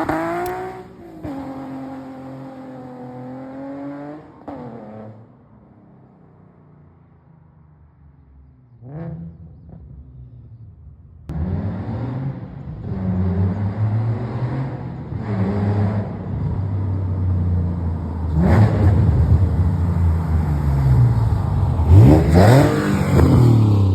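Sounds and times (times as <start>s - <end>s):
car exhaust revving: 18.3s - 23.9s.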